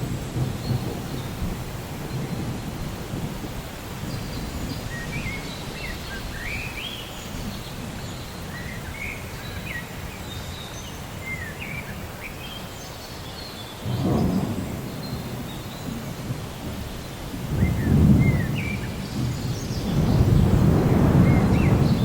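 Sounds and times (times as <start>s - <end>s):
thunder rumbling: 0.0s - 6.5s, 13.8s - 22.0s
steady rain: 0.0s - 22.0s
birds whistling calls: 17.5s - 22.0s.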